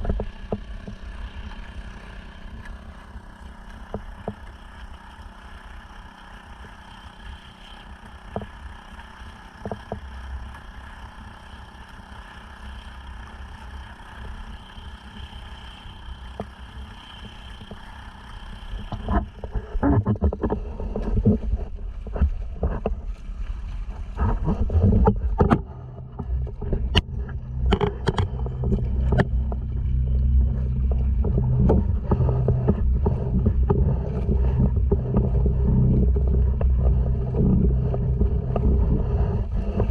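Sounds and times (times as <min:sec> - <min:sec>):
water splashes and knocks: 0:00.0 - 0:01.7, 0:02.6 - 0:05.0, 0:08.0 - 0:10.6, 0:18.8 - 0:39.9
outboard motor running: 0:00.0 - 0:39.9
wind on microphone: 0:18.8 - 0:39.9.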